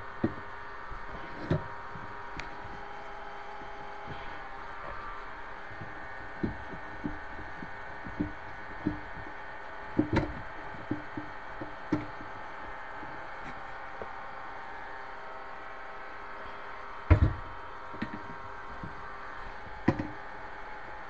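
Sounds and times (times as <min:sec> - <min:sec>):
faint steady hum: 0:00.0 - 0:21.0
wooden knocks and taps: 0:05.8 - 0:09.3, 0:09.9 - 0:12.3, 0:17.1 - 0:20.2.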